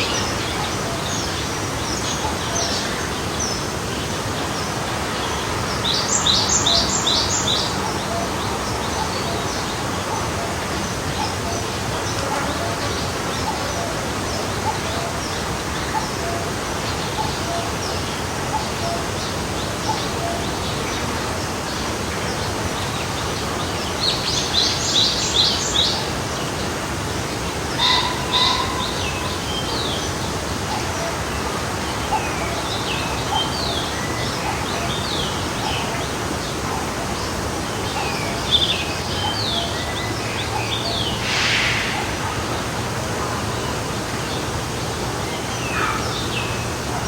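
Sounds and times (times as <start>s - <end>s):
birds chirping: 0.0s - 47.0s
stream flowing: 0.0s - 47.0s.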